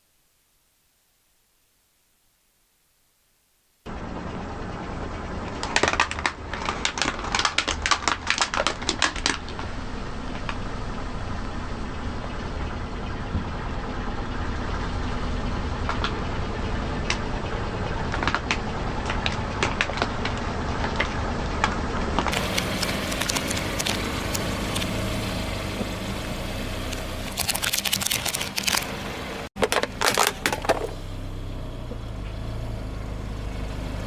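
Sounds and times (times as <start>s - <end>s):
low rumble of car: 3.9s - 34.0s
car tyre crushing crunchy object: 5.5s - 10.9s, 15.8s - 26.0s, 26.7s - 31.2s
sharp crackling snaps: 5.6s - 9.7s, 21.7s - 24.9s.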